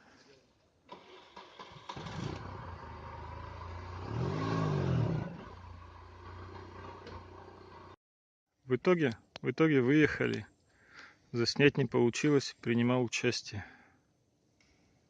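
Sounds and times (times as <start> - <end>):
buggy engine revving: 0.9 - 8.0.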